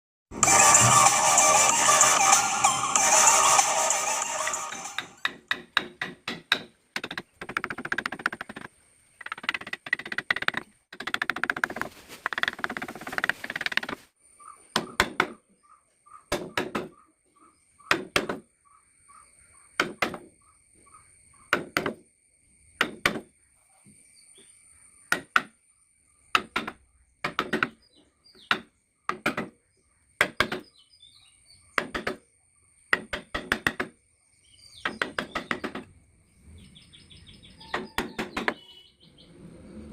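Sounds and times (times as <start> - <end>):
mallet striking chisel: 5.0 - 7.1
sharp knocks on wood: 5.2 - 8.7, 16.3 - 17.0, 26.4 - 27.8, 32.9 - 34.0.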